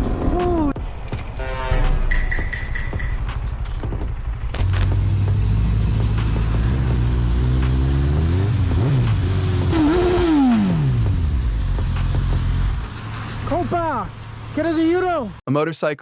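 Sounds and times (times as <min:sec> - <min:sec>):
vehicle engine revving: 0:03.2 - 0:15.4.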